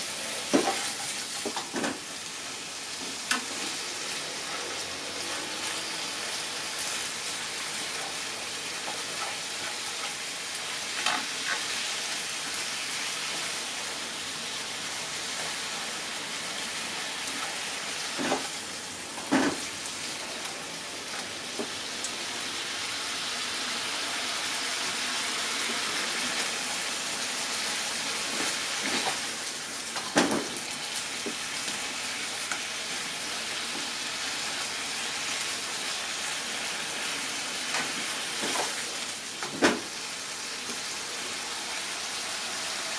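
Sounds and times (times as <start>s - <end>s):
food sizzling in a frying pan: 0.0s - 42.9s.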